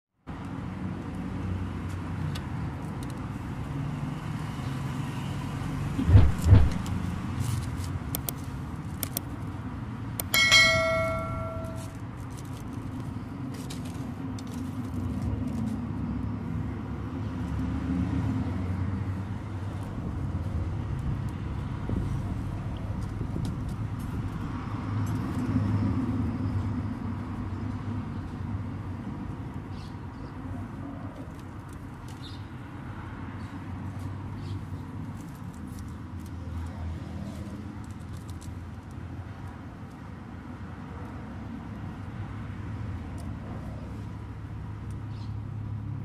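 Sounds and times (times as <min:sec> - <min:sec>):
steady low rumble: 0:06.0 - 0:07.4
metallic ring: 0:10.2 - 0:12.0.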